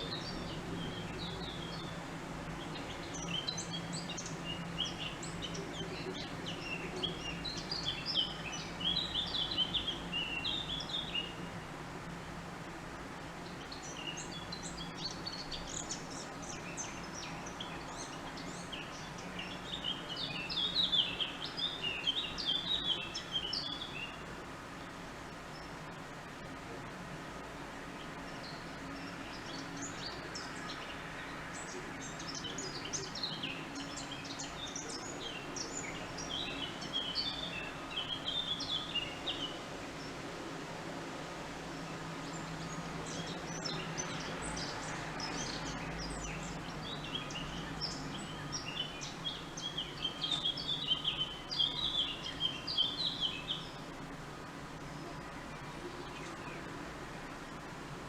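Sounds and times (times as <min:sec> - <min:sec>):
songbird twittering: 0:42.3 - 0:54.0.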